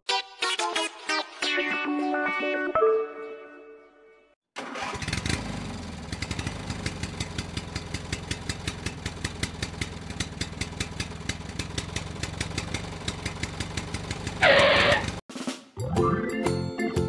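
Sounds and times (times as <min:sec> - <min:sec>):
tractor diesel engine idling: 0:05.8 - 0:15.2.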